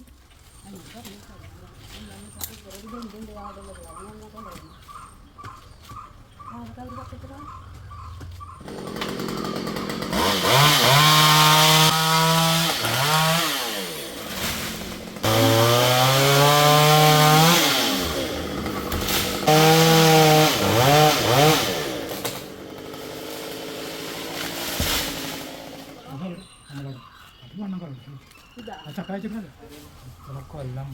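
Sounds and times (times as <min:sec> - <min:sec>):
chainsaw revving: 0:08.6 - 0:26.2.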